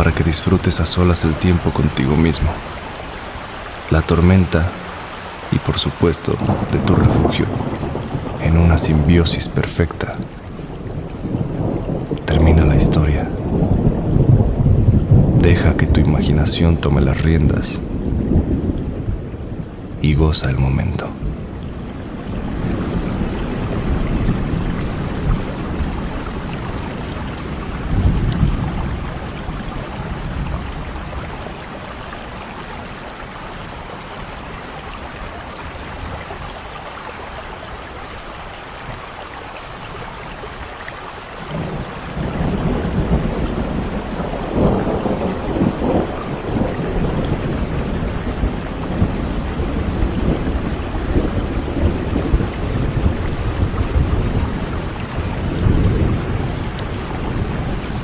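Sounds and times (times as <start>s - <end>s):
steady rain: 0.0s - 58.0s
rolling thunder: 6.4s - 15.4s, 41.5s - 58.0s.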